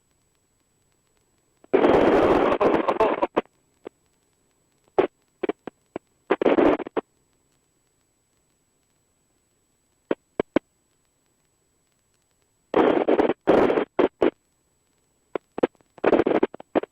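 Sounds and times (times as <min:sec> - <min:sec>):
radio clicks and pops: 0:00.0 - 0:16.9
radio bursts of rushing noise: 0:01.7 - 0:03.5, 0:06.3 - 0:07.0, 0:12.8 - 0:14.4.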